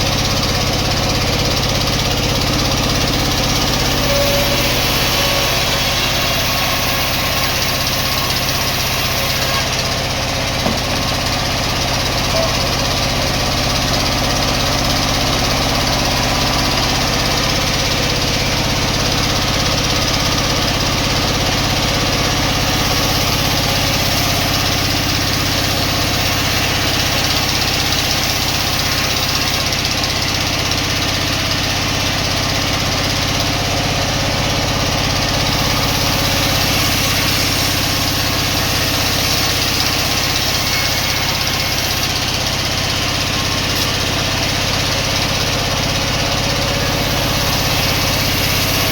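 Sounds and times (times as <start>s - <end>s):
sawmill machinery droning: 0.0s - 48.9s.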